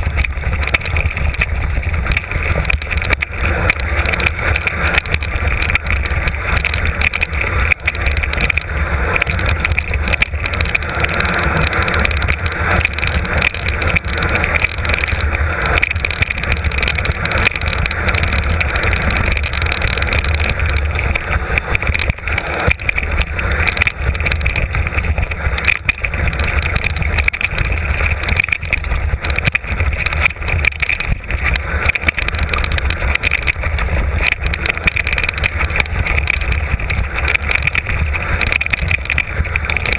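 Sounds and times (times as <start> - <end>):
bike tyres on rough ground: 0.0 - 39.9
wind buffeting microphone: 0.0 - 39.9.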